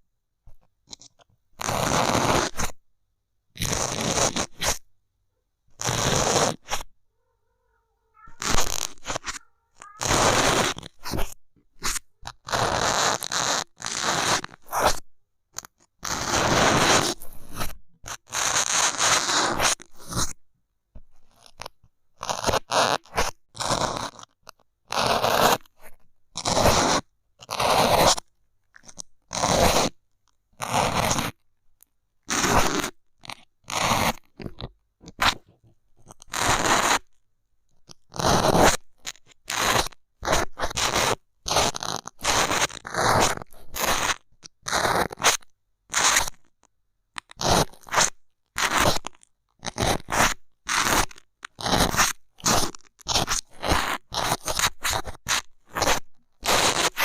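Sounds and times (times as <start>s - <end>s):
bamboo stick scraping microphone: 0.9s - 2.8s, 3.5s - 4.9s, 5.7s - 6.9s, 8.2s - 15.0s, 32.3s - 37.1s, 37.9s - 46.4s, 47.2s - 57.0s.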